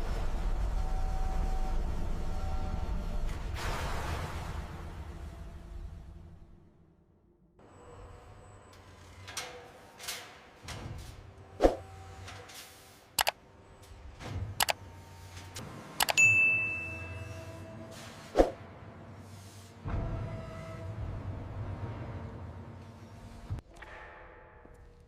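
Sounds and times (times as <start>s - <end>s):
short ringing ding: 16.2s - 17.6s.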